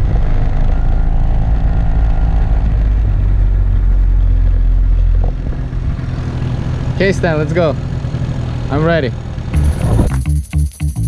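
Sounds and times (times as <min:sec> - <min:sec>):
motor scooter engine running: 0:05.6 - 0:11.0.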